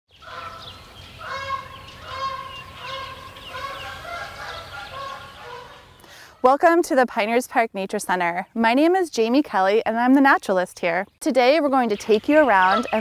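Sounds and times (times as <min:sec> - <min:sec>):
high bird chirps: 0:00.1 - 0:06.2, 0:11.8 - 0:13.0
wild birds calling: 0:00.1 - 0:06.5, 0:11.8 - 0:13.0.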